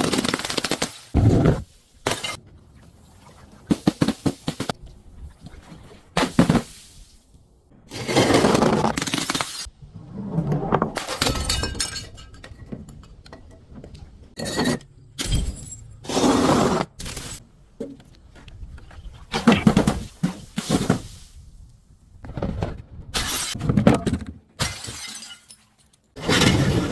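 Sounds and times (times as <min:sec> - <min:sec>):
glass bottles shattering: 0:11.1 - 0:12.6, 0:24.6 - 0:26.9.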